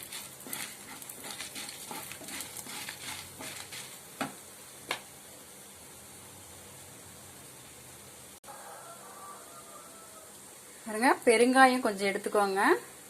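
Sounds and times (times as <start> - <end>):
spatula scraping frying pan: 0.0 - 4.1
faint hiss: 0.0 - 13.0.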